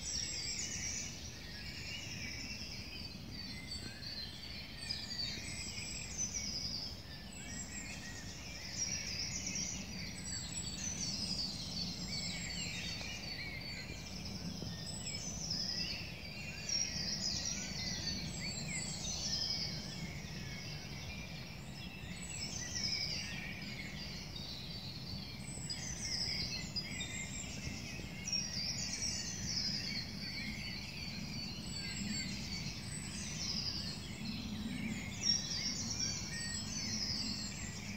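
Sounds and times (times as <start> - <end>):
songbirds singing: 0.0 - 37.9.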